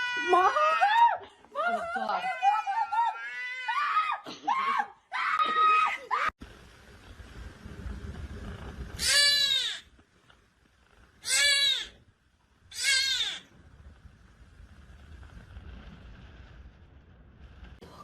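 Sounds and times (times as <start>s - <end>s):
cat meowing loudly: 9.0s - 9.8s, 11.2s - 12.0s, 12.7s - 13.4s.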